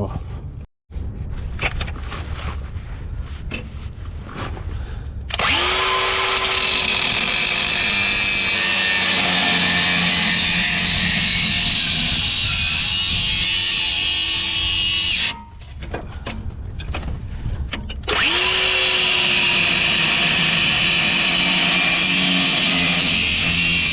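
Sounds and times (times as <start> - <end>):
angle grinder cutting metal: 5.3 - 15.4, 18.1 - 23.9.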